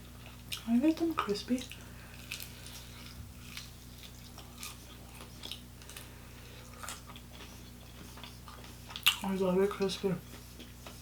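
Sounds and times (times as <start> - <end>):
chewing crispy chicken: 0.0 - 11.0
low electrical hum: 0.0 - 11.0.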